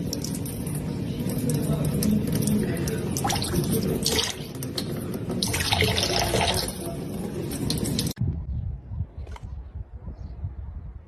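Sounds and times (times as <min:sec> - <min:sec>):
running water from a tap: 0:00.0 - 0:08.2.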